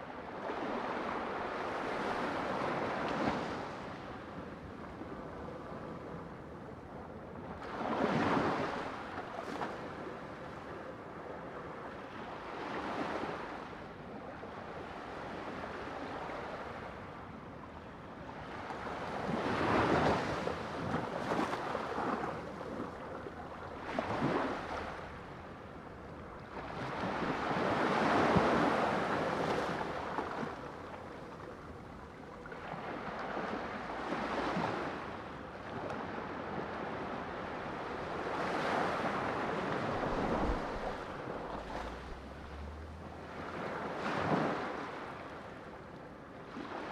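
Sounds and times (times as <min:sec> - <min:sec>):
sea waves breaking on shore: 0:18.4 - 0:46.9.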